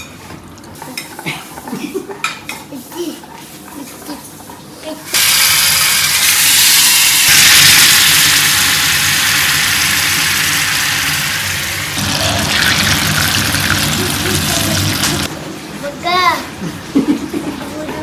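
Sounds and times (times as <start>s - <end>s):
food sizzling in hot oil: 5.1s - 15.3s.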